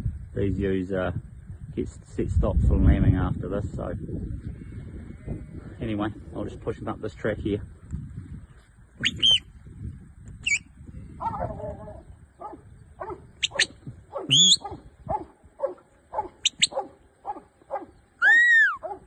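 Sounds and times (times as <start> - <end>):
high sharp whistle-like calls: 9.0 - 9.5, 10.4 - 10.7, 13.4 - 14.7, 16.4 - 16.8, 18.2 - 18.8
dog barking: 11.2 - 11.6, 12.4 - 13.3, 14.1 - 18.0, 18.8 - 19.0.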